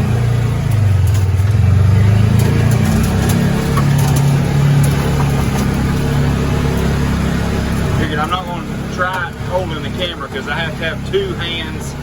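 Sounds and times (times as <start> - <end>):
engine pulling hard uphill: 0.0 - 12.0.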